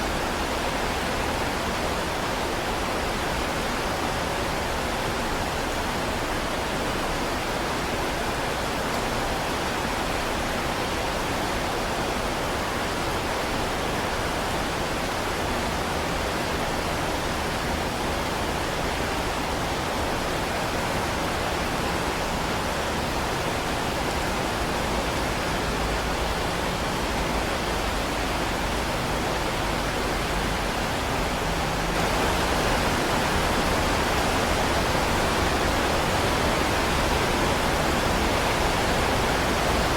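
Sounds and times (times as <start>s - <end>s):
heavy rain hiss: 22.9s - 39.9s.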